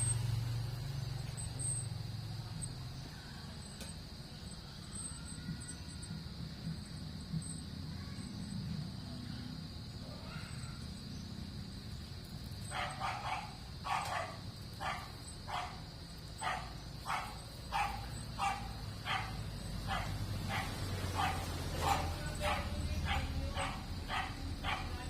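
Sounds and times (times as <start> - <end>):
dog barking: 12.7 - 25.0.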